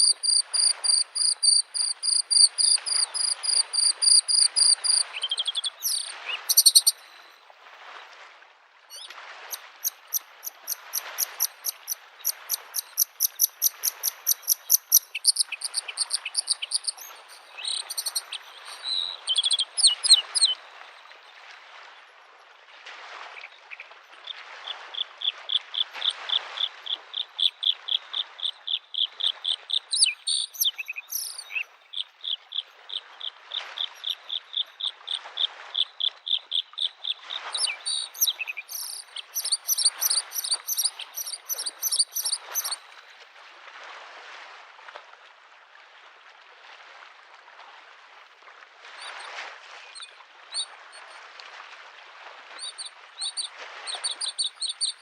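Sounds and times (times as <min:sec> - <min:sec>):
bird singing rapid chirps: 0:00.0 - 0:07.0, 0:10.1 - 0:20.6, 0:29.9 - 0:31.6, 0:37.6 - 0:42.8, 0:52.7 - 0:55.0
small waves washing on shore: 0:00.0 - 0:55.0.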